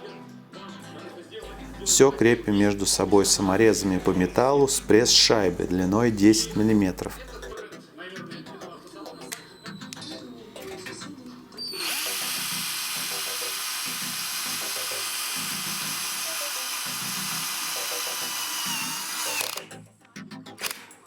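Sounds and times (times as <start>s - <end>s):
power drill driving screws: 11.7s - 19.7s.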